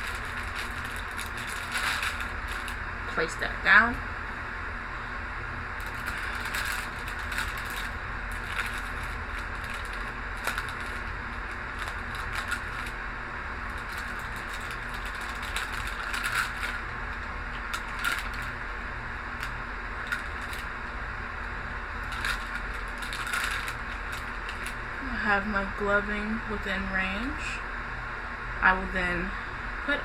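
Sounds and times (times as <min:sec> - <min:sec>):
glove packaging crinkling: 0:00.0 - 0:02.9, 0:05.8 - 0:13.0, 0:13.6 - 0:18.6, 0:19.4 - 0:20.8, 0:21.9 - 0:24.9
low room hum: 0:00.0 - 0:30.0.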